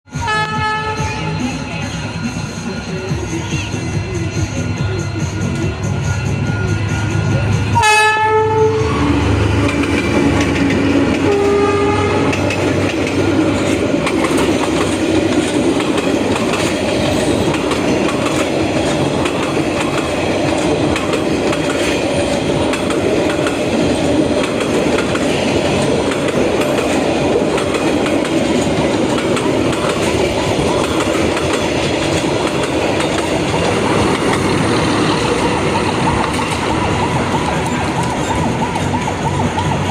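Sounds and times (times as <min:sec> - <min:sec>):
train horn: 0:00.1 - 0:01.4, 0:07.7 - 0:09.4, 0:11.2 - 0:12.5
train rumbling: 0:00.1 - 0:39.9
wheels clacking over rail joints: 0:09.5 - 0:39.9.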